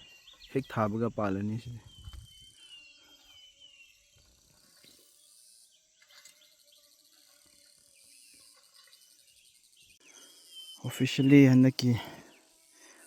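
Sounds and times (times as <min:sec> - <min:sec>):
bird chirps: 0:00.0 - 0:07.1
insects chirring: 0:00.0 - 0:13.0.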